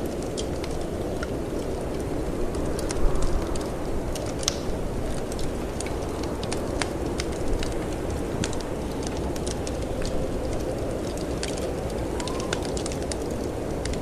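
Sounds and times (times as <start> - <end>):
storm wind rushing: 0.0 - 14.0
wood fire crackling: 0.0 - 14.0.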